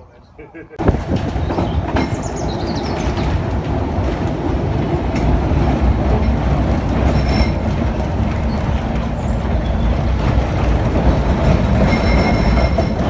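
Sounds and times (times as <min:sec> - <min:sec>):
tram rumbling on rails: 0:00.0 - 0:13.0
high wheel squeals: 0:11.8 - 0:13.0.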